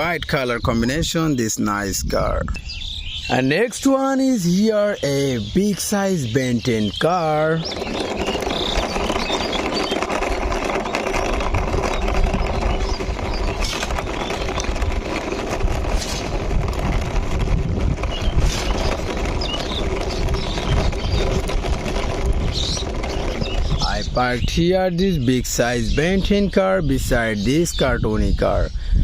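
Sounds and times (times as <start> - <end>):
birds chirping faintly: 0.0 - 16.4, 18.0 - 29.0
toy car wheels rattling: 4.2 - 26.4.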